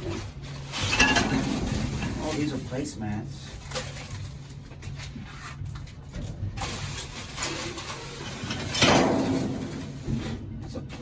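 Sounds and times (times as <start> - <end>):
trash being shifted in dumpster: 0.0 - 2.8, 6.6 - 10.5.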